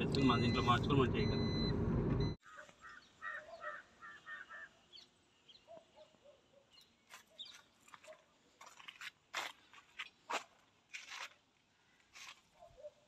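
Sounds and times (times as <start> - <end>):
short bird calls: 2.4 - 4.8.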